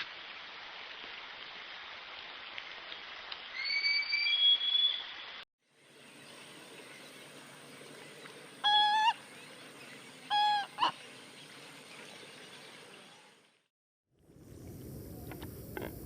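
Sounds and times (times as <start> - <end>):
rainforest ambience hiss: 0.0 - 13.2, 14.3 - 16.0
bird honk-like calls: 8.6 - 9.2, 10.3 - 11.0.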